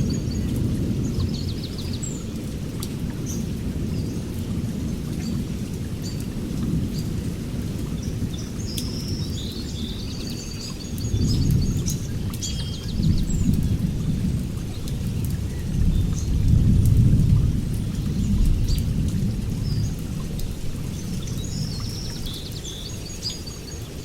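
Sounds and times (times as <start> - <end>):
rain falling with drips: 0.0 - 24.0
low rolling thunder: 11.1 - 22.3.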